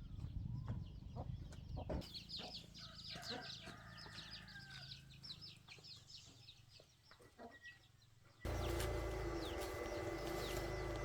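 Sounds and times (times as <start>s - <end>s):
birds chirping: 0.1s - 11.0s.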